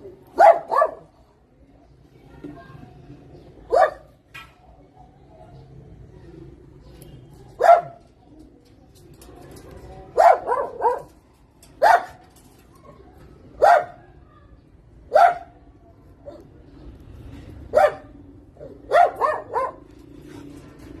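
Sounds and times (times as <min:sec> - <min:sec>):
dog barking: 0:00.4 - 0:01.2, 0:03.7 - 0:04.1, 0:07.6 - 0:08.0, 0:10.2 - 0:11.2, 0:11.8 - 0:12.2, 0:13.6 - 0:14.0, 0:15.1 - 0:15.6, 0:17.7 - 0:19.9.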